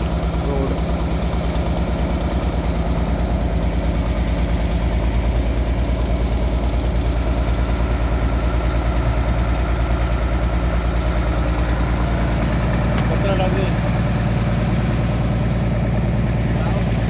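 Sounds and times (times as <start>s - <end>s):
diesel engine throbbing: 0.0s - 17.0s.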